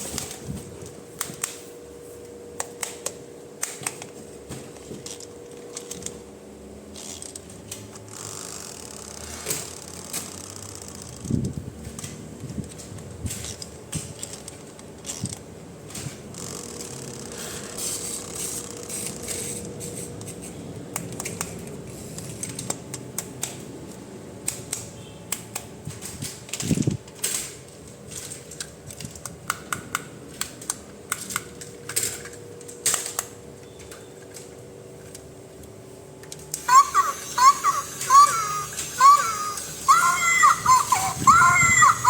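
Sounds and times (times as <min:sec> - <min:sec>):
plastic toy pieces clicking: 0:28.1 - 0:33.4.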